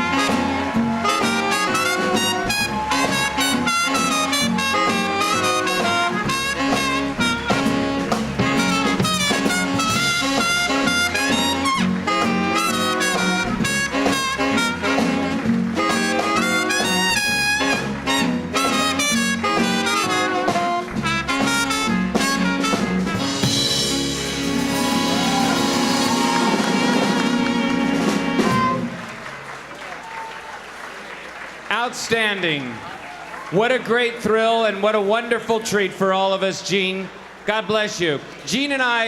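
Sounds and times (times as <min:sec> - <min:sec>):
swing band playing jazz: 0:00.0 - 0:30.2
applause: 0:15.3 - 0:18.7, 0:25.1 - 0:34.3, 0:36.7 - 0:38.9.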